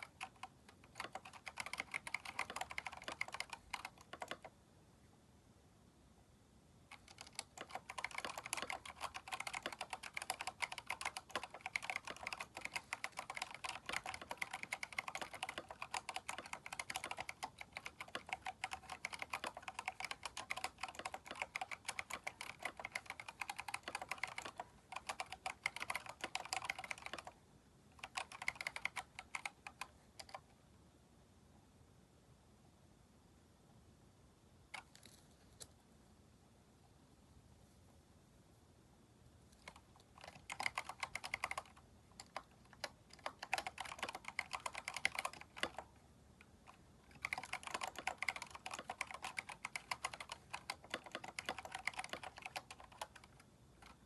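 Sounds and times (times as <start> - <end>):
mechanical keyboard typing: 0.0 - 4.5, 6.9 - 27.4, 28.0 - 30.5, 39.6 - 54.0.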